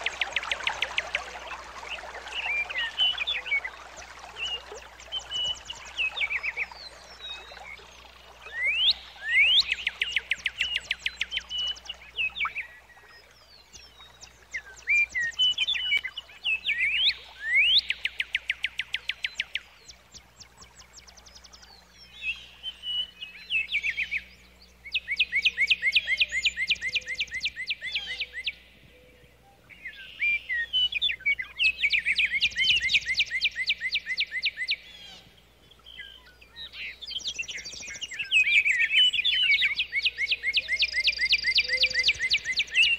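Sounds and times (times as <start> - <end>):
songbird trilling and whistling: 0.0 - 13.0, 35.8 - 42.9.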